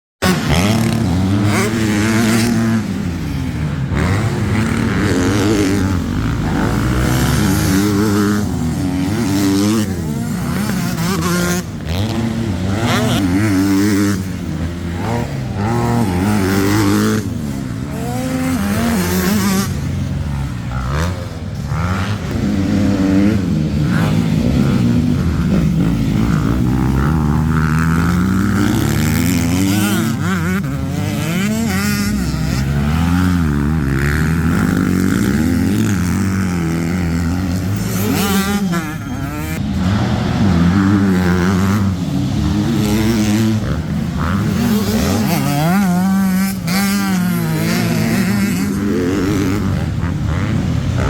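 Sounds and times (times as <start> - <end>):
motorcycle engines revving: 0.2 - 51.0.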